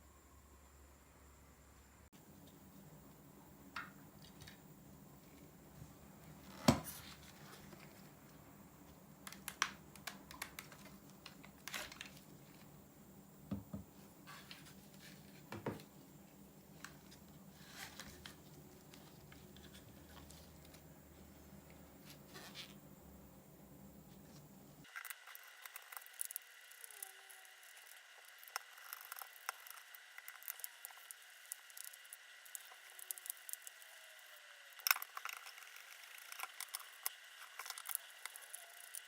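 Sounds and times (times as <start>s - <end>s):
small objects handled on surface: 16.7s - 22.8s.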